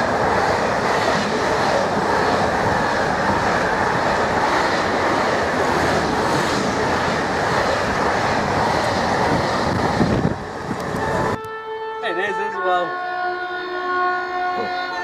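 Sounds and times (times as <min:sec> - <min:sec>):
train wheels on rails: 0:00.0 - 0:11.4.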